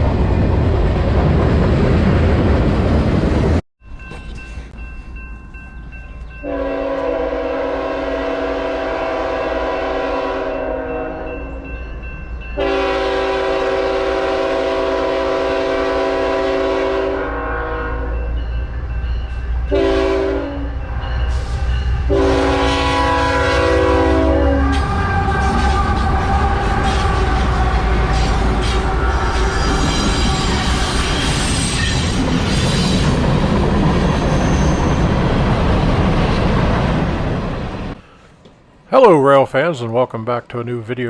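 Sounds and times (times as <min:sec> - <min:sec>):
low rumble of train: 0:00.0 - 0:39.0
locomotive horn blasts: 0:06.4 - 0:11.6, 0:12.6 - 0:18.2, 0:19.7 - 0:20.8, 0:22.0 - 0:29.8.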